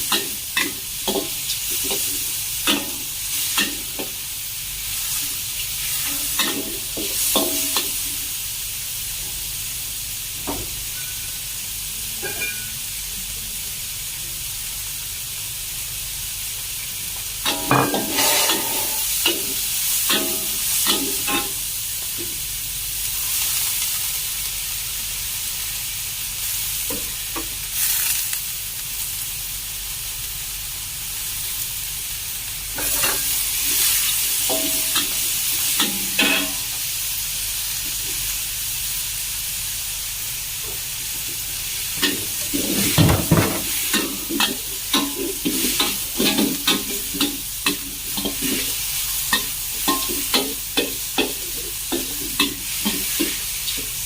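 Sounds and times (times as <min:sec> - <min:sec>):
chicken sizzling in a pan: 0:00.0 - 0:54.0
utensil scraping a pan: 0:17.5 - 0:19.1.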